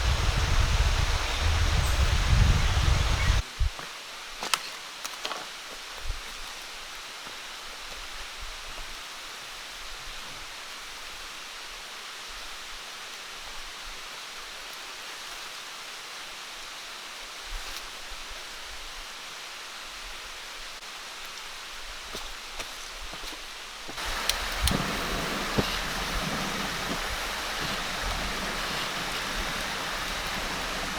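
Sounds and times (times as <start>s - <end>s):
hiss of water: 0.0s - 3.4s, 23.9s - 30.9s.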